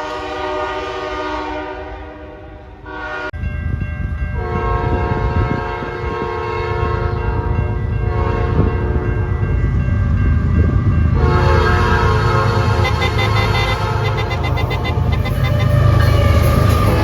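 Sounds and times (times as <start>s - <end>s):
train horn blast: 0.0s - 3.4s, 4.4s - 8.8s, 11.2s - 17.0s
passing train rumble: 0.0s - 17.0s.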